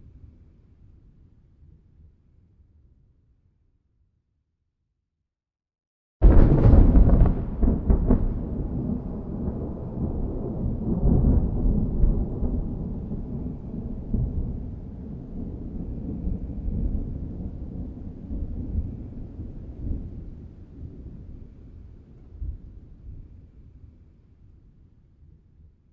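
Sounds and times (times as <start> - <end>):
thunder rumbling: 6.2 - 21.3.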